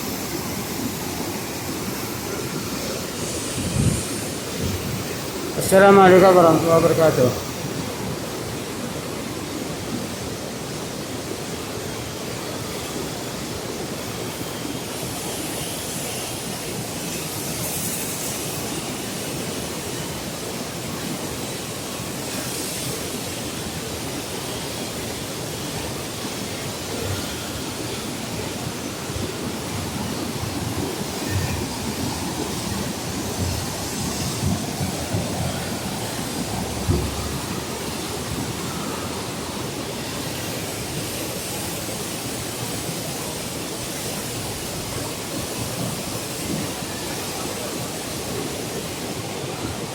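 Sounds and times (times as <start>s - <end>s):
floodwater rushing: 0.0s - 49.9s.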